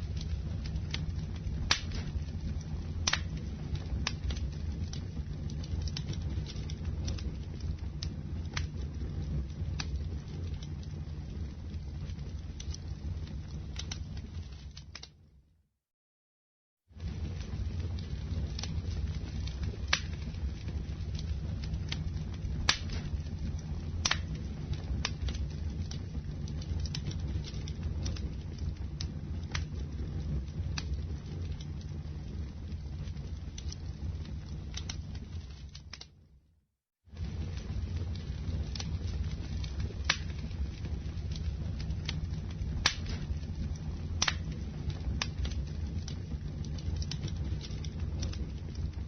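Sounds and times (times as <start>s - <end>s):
burning wood crackling and popping: 0.0s - 15.2s, 16.9s - 36.2s, 37.1s - 49.0s
low rumble of flames: 0.0s - 15.5s, 16.8s - 49.0s.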